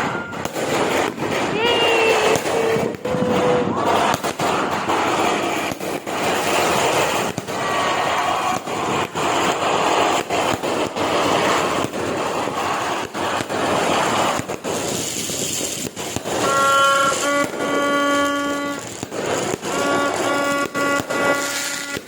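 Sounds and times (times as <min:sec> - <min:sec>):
fireworks shots: 0:00.0 - 0:22.0
steady pitched horn-like tone: 0:16.4 - 0:18.9, 0:19.7 - 0:22.0.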